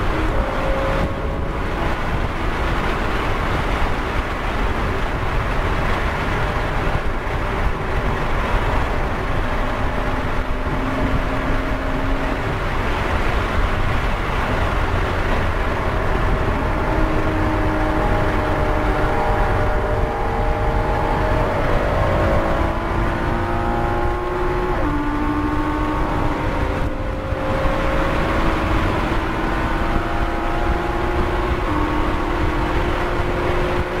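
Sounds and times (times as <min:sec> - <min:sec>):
car engine at high revs: 0:00.0 - 0:34.0
wind and tyre noise: 0:00.0 - 0:34.0.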